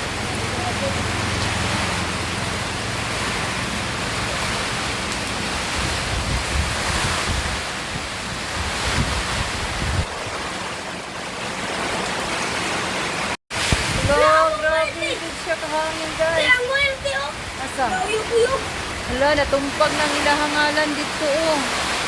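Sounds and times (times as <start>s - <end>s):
heavy rain: 0.0s - 22.0s
strong wind gusting: 0.0s - 22.0s
wind rumble on microphone: 1.3s - 11.0s, 13.6s - 14.9s.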